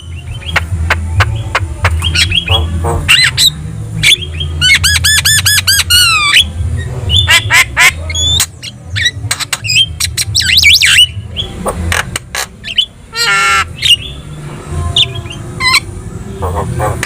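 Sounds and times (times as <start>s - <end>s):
bird squawks: 0.0s - 6.5s, 7.1s - 11.6s, 12.4s - 14.2s
myna bird singing: 0.0s - 17.0s.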